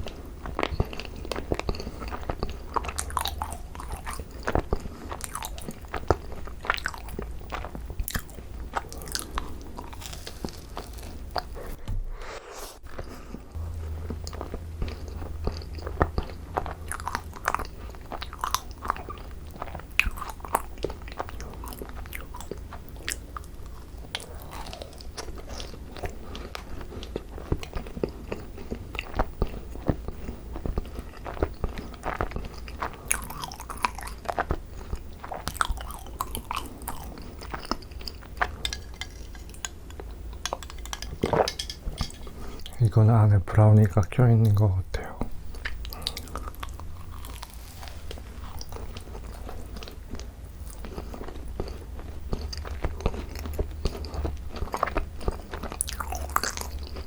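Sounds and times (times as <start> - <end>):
biting and chewing macarons: 0.0 - 11.8, 12.8 - 57.0
low steady hum: 12.9 - 57.0.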